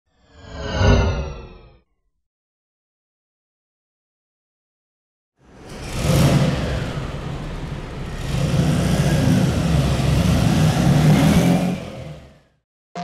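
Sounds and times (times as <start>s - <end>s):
car engine revving: 5.4s - 12.6s.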